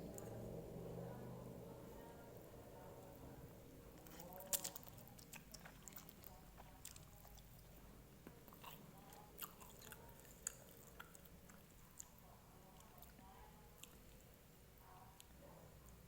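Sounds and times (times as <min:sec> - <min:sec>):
chewing noodles: 0:03.9 - 0:14.3.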